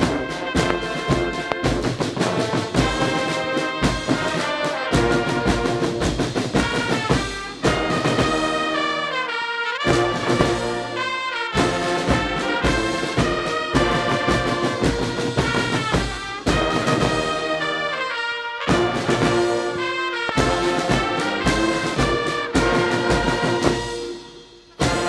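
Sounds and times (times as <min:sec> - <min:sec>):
steady low drum beat: 0:00.0 - 0:08.6, 0:09.9 - 0:11.0, 0:18.7 - 0:25.0
military brass band playing: 0:00.0 - 0:25.0.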